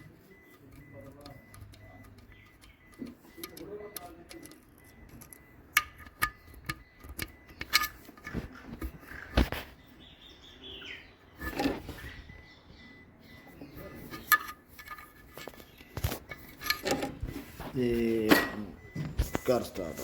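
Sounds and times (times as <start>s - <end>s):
metallic clinks and knocks: 0.0s - 9.3s, 13.9s - 19.6s.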